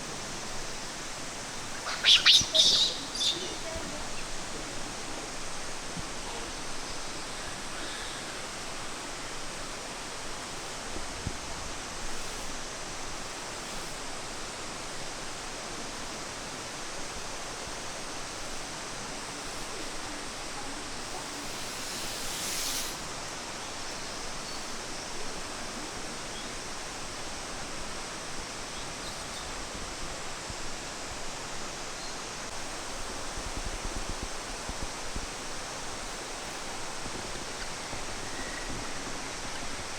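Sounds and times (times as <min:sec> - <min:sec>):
brief bright hiss: 0:01.8 - 0:03.4, 0:21.0 - 0:23.3.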